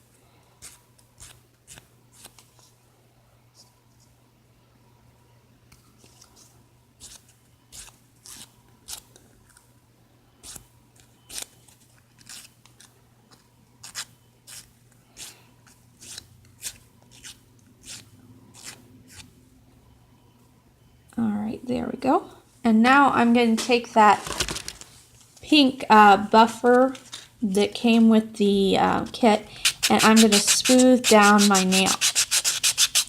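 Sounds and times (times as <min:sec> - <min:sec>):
nail file rasping: 0:29.6 - 0:33.0.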